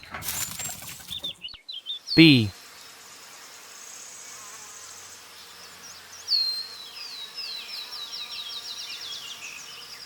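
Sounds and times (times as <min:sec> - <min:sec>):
faint buzzing of bees: 0:02.2 - 0:10.0.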